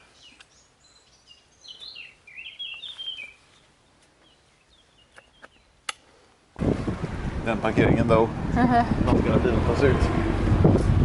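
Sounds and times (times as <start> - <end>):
small bird chirping: 0.0 - 5.8.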